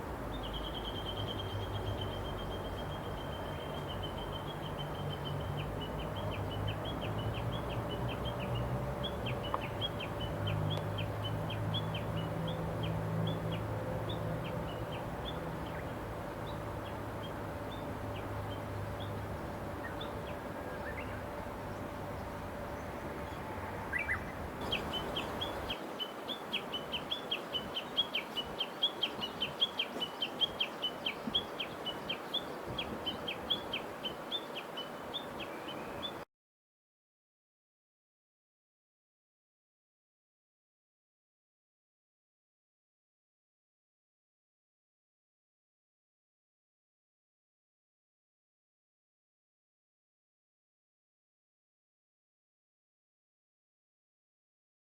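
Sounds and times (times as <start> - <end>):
songbird chirping: 0.0 - 36.3.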